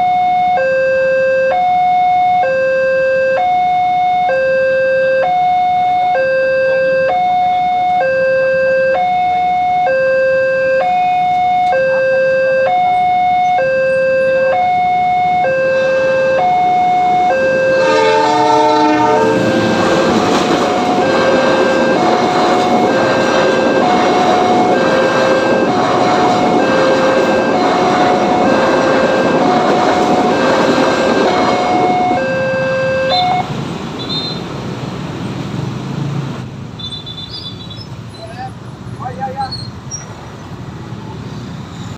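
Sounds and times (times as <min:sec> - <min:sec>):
two-tone crossing alarm: 0:00.0 - 0:34.4
train horn: 0:09.8 - 0:33.5
train rushing over rails: 0:12.7 - 0:36.8.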